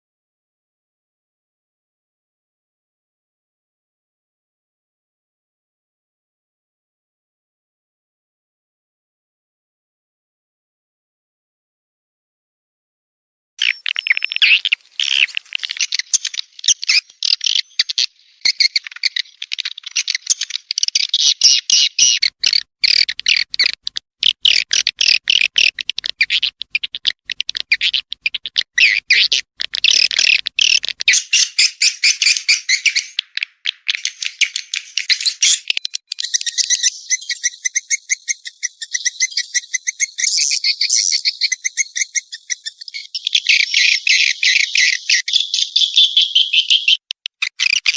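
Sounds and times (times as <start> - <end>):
swiftlets chirping and twittering: 29.9 - 47.9.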